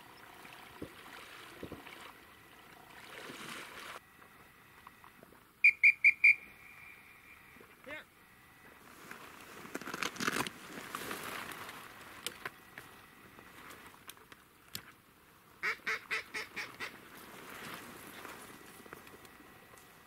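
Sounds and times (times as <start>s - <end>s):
duck quacking: 15.6s - 17.0s.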